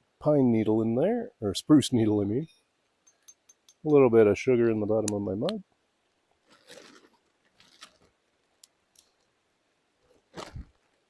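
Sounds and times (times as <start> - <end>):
crunching rustle: 6.4 - 8.2, 10.2 - 11.0.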